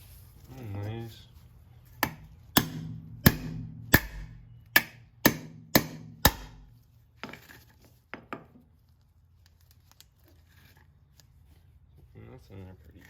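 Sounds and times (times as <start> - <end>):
knife blade striking wood: 2.0 - 6.7.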